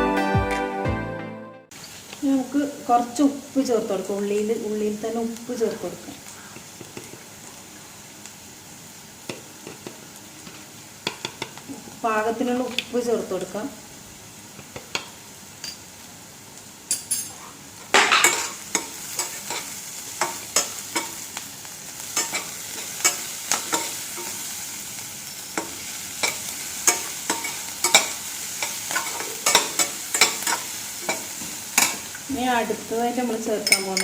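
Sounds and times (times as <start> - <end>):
food sizzling in a pan: 1.7 - 34.0
spatula scraping a pan: 18.1 - 21.2.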